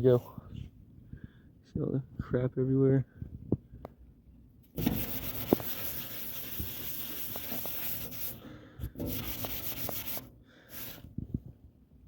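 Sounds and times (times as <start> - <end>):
scouring pad scrubbing metal grill: 4.8 - 11.0.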